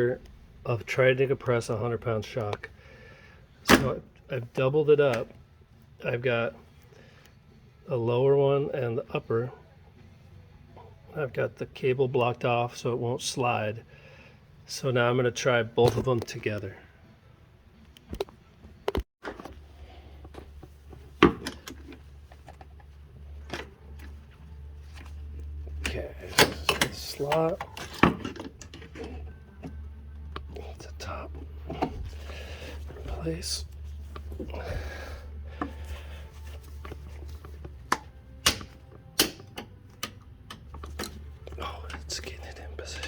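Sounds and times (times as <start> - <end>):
steady low hum: 19.5 - 43.0
hand tools knocking and clicking: 37.9 - 41.2.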